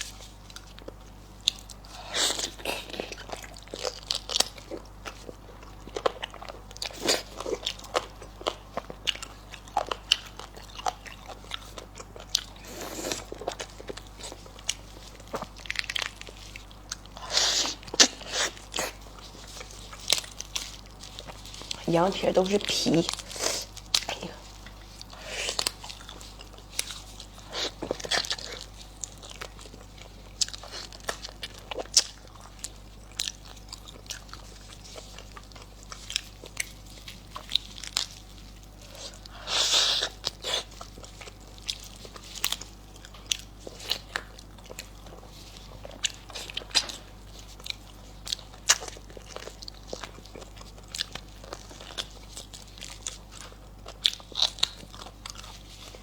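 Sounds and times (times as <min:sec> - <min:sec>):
person chewing with wet smacks: 0:00.0 - 0:56.0.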